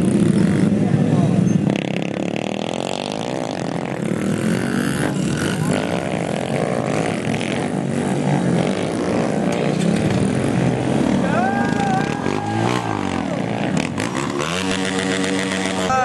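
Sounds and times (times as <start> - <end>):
small motorbike engines revving: 0.0 - 16.0.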